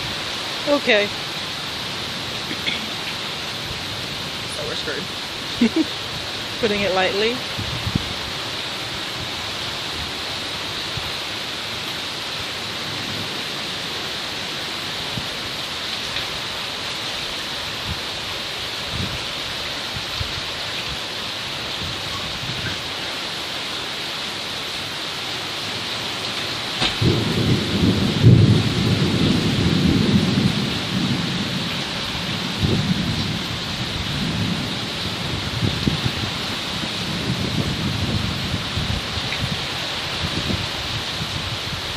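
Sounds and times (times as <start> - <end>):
rain falling: 0.0 - 41.9
thunder crack and rumble: 26.8 - 39.6.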